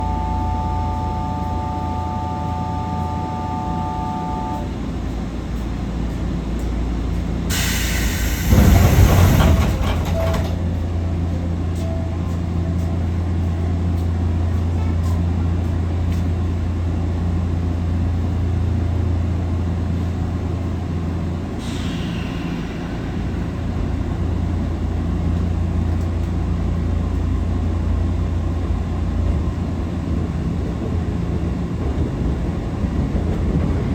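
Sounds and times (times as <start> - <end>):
chord of steady tones: 0.0 - 4.9
electric train hum: 0.0 - 33.9
air hiss: 7.5 - 9.0, 21.6 - 23.7.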